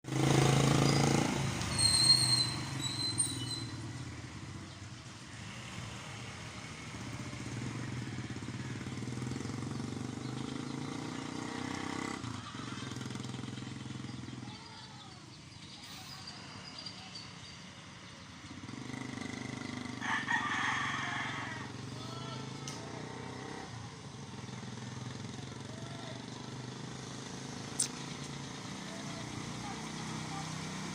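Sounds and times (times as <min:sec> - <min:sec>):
motorcycle engine running: 0:03.6 - 0:15.4, 0:18.4 - 0:30.9.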